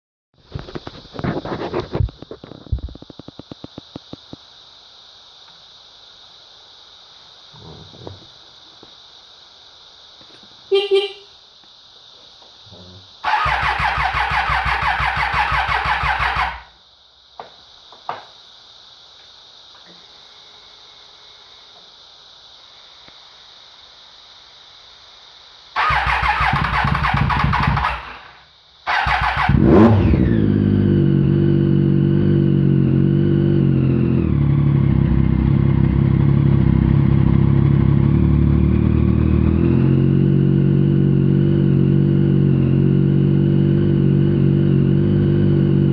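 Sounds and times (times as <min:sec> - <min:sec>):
engine starter cranking: 0:13.2 - 0:16.7, 0:25.8 - 0:30.1
motorcycle engine idling: 0:13.2 - 0:16.7, 0:25.8 - 0:45.9
motorcycle engine revving: 0:13.2 - 0:16.7, 0:25.8 - 0:45.9.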